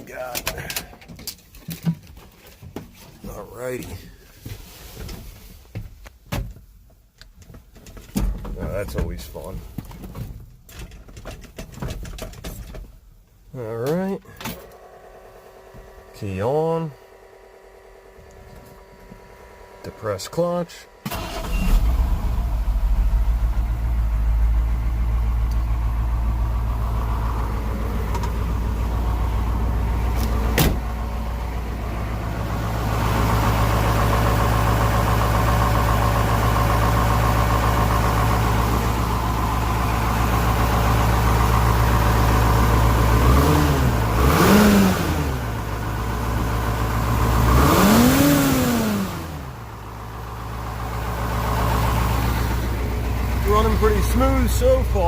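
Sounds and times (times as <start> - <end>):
diesel engine idling and revving: 14.7 - 55.0.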